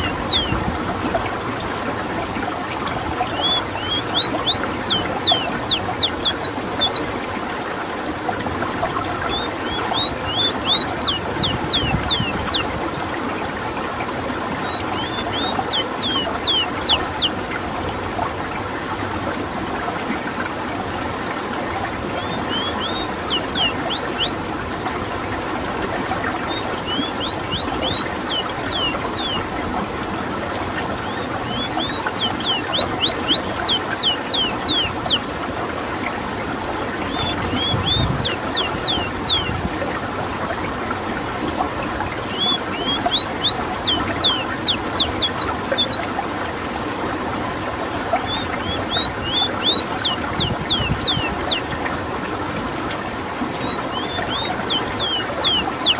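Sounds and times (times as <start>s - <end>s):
bird singing downward whistles: 0.0s - 0.6s, 3.2s - 7.2s, 9.2s - 12.7s, 14.6s - 17.4s, 22.2s - 24.4s, 26.5s - 29.5s, 31.0s - 35.3s, 37.1s - 39.5s, 42.2s - 46.1s, 48.1s - 51.7s, 53.6s - 55.9s
steady background hiss: 0.0s - 55.9s.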